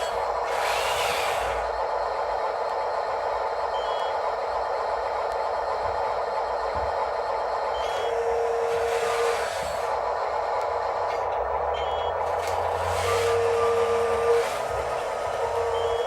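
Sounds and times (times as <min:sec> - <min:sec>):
small-motor whine: 0:00.0 - 0:02.2, 0:07.7 - 0:16.0.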